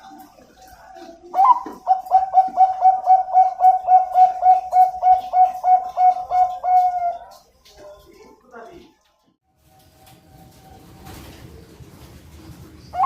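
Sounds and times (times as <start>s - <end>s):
dove cooing: 0.0s - 7.5s, 12.7s - 13.0s.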